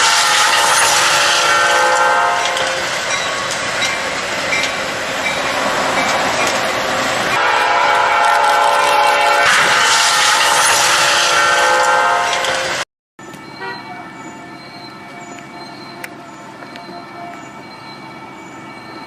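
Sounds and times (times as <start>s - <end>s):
train air horn: 0.0s - 3.0s, 7.4s - 12.8s, 13.6s - 15.4s
moving train rushing: 0.0s - 19.0s.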